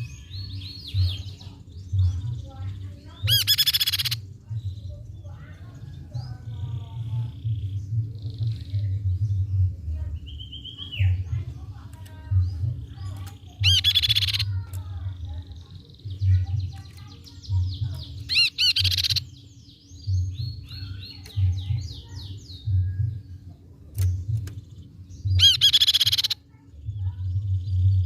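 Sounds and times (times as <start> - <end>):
soft bird trills: 3.0 - 4.2, 13.0 - 15.0, 16.3 - 19.4, 23.9 - 27.2
bird ringing calls: 3.1 - 4.2, 12.9 - 14.7, 16.3 - 23.3, 24.0 - 26.4
low pulse: 6.1 - 10.5, 19.2 - 25.6.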